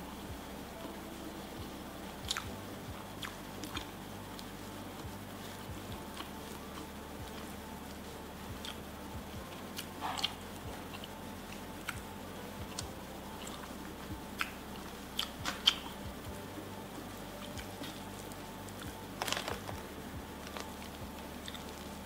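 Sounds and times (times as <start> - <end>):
chewing: 2.2 - 2.6, 9.4 - 12.1, 12.7 - 16.3, 17.4 - 21.8.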